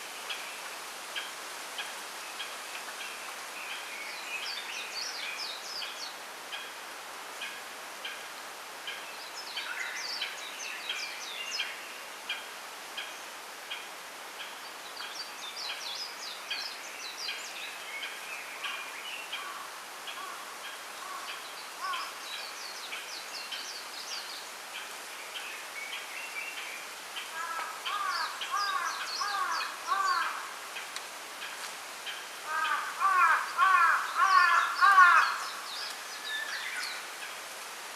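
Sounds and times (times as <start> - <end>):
background hiss: 0.0 - 37.9
lower falling bird calls: 8.9 - 37.5
small birds warbling: 27.2 - 37.4.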